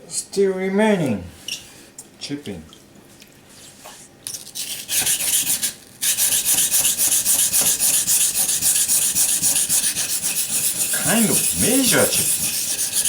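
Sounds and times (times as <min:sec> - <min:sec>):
knife scraping on whetstone: 0:04.6 - 0:13.0.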